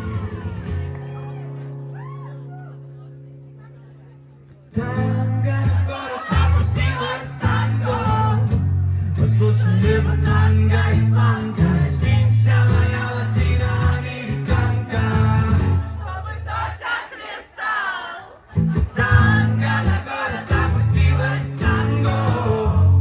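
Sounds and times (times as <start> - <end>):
guitar: 0.0 - 16.8, 18.4 - 23.0
long held bass notes: 4.8 - 16.4, 18.6 - 23.0.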